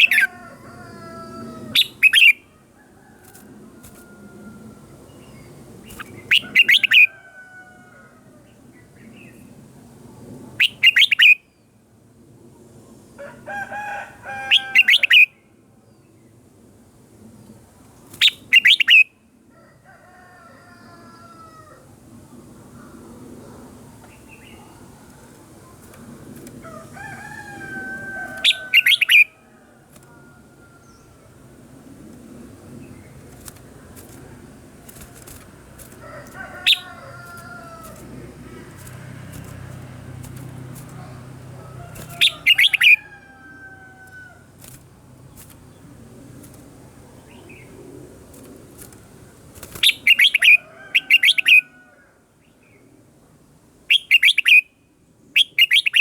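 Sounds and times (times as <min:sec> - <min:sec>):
bird singing bright phrases: 0:42.1 - 0:43.0.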